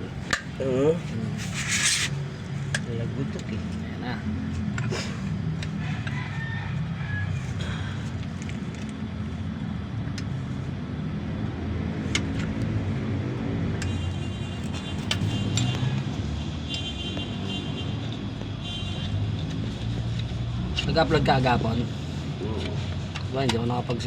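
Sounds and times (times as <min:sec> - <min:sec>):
vehicle engine idling: 0:02.2 - 0:16.0.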